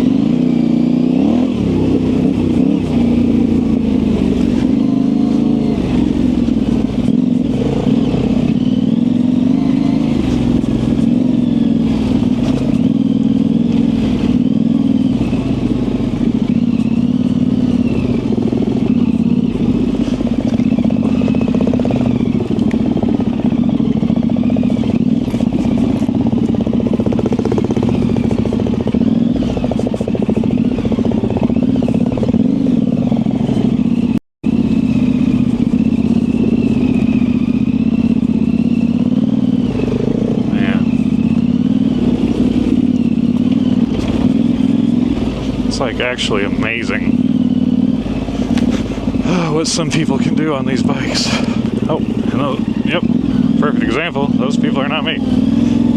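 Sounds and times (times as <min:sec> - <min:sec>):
motorcycle engine under load: 0:00.0 - 0:55.9.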